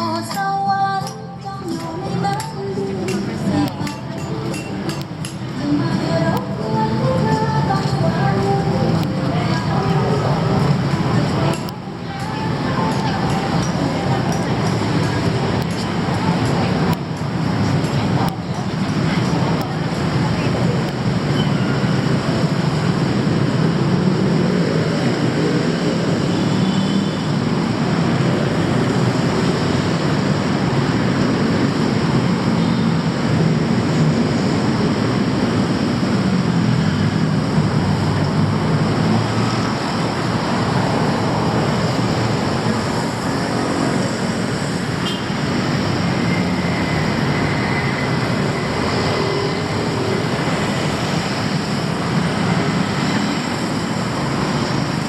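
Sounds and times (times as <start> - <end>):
city traffic engines: 0.0 - 55.0.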